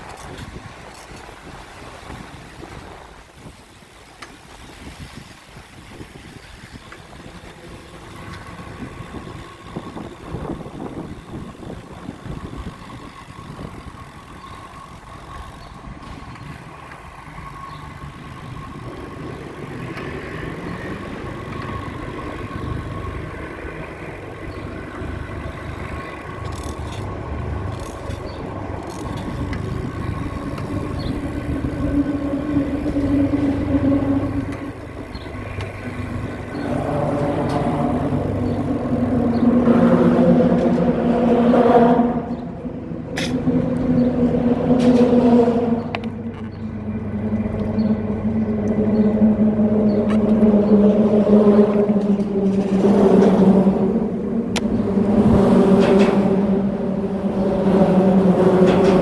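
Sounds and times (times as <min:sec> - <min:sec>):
engine hum: 0:00.0 - 0:59.0
traffic rumble: 0:00.0 - 0:59.0.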